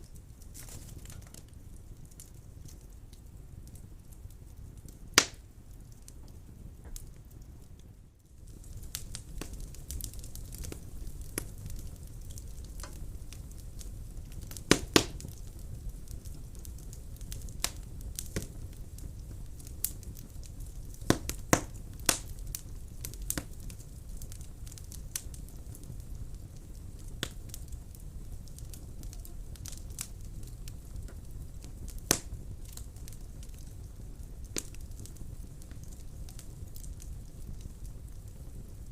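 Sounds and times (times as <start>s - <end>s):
fire rumbling: 0.0s - 38.9s
logs crackling and popping: 0.0s - 38.9s.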